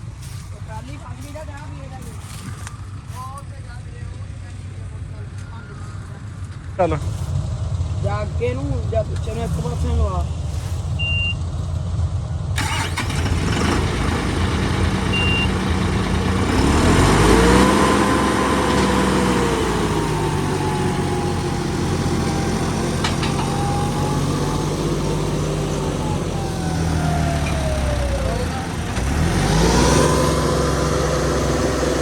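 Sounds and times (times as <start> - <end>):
tractor engine under load: 6.8 - 32.0.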